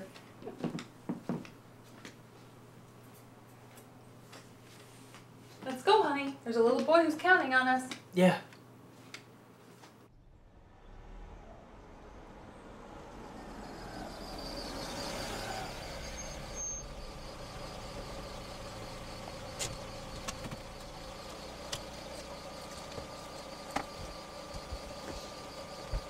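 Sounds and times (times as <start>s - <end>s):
car engine running: 10.1s - 26.0s.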